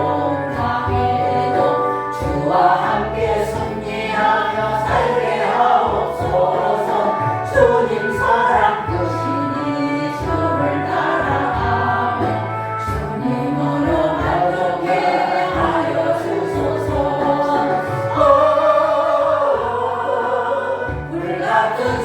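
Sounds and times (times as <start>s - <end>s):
congregation singing a hymn: 0.0s - 22.0s
low bass notes: 0.0s - 22.0s.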